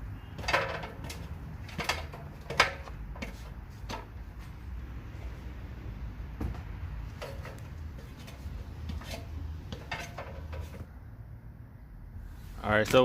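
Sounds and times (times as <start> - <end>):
ladder and tools knocking: 0.3 - 4.4, 6.4 - 10.9.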